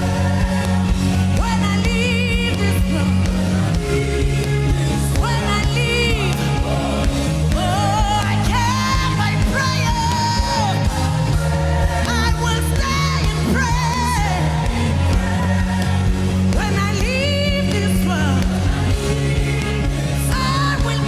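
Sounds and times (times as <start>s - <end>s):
held low accompaniment chords: 0.0s - 21.0s
person singing with vibrato: 0.0s - 21.0s.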